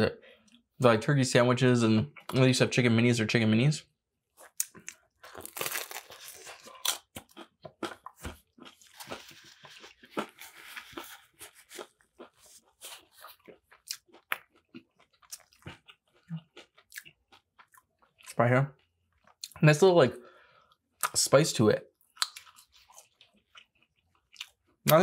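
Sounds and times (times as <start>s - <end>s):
person chewing crunchy food: 4.3s - 19.6s, 22.0s - 24.9s.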